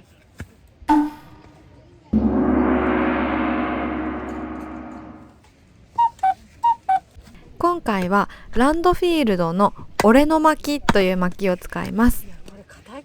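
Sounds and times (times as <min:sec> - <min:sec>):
gong ringing: 0:02.2 - 0:05.3.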